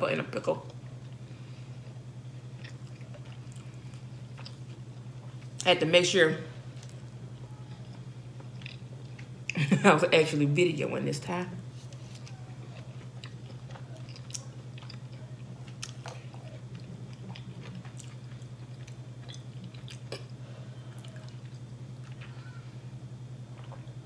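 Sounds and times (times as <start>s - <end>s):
steady low hum: 0.0s - 24.0s
wet chewing and mouth clicks: 2.6s - 4.8s, 7.8s - 9.6s, 11.9s - 20.3s.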